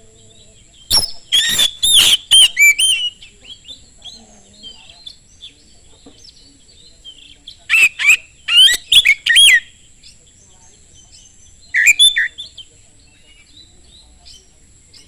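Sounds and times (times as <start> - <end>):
bird whistled song: 0.0 - 15.0
faint chirps: 0.0 - 15.0
faint high-pitched whine: 0.0 - 15.0.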